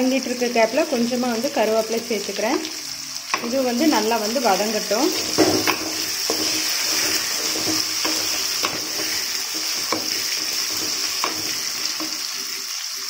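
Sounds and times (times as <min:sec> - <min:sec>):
vegetables sizzling in oil: 0:00.0 - 0:13.0
spatula scraping pan: 0:03.2 - 0:12.6.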